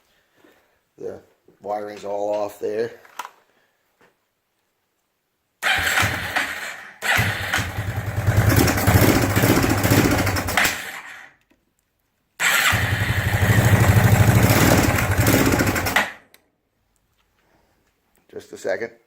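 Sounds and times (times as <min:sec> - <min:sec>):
engine electric starter cranking: 0:05.6 - 0:11.3, 0:12.4 - 0:16.3.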